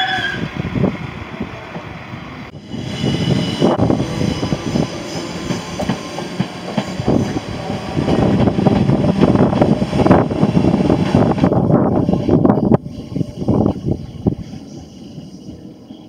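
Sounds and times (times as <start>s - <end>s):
train wheels clicking over rail joints: 4.5s - 12.1s.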